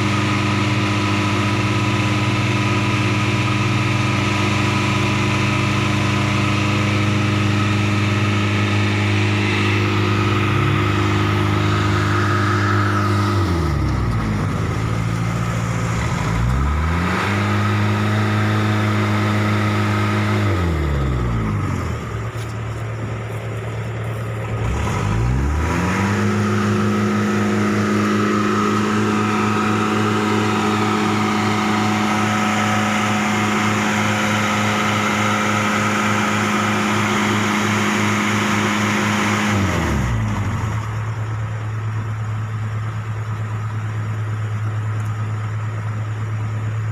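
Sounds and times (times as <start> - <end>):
vehicle engine running: 0.0 - 46.9.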